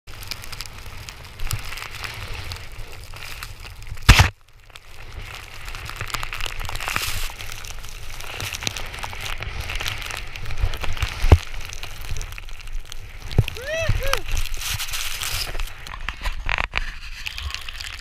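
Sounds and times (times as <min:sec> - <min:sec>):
wind on camera: 0:05.1 - 0:18.0
snowboard hissing through snow: 0:13.2 - 0:15.8.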